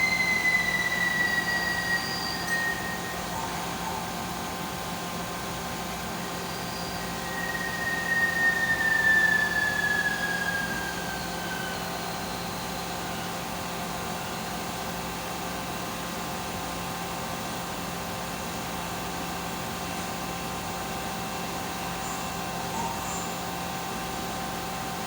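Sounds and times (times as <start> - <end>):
high whine falling in pitch: 0.0 - 13.4
machine mechanical hum: 0.0 - 25.0.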